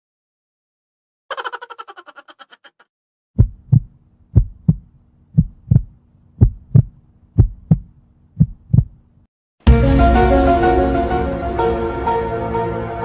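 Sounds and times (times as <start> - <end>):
heartbeat double thumps: 3.4 - 9.0.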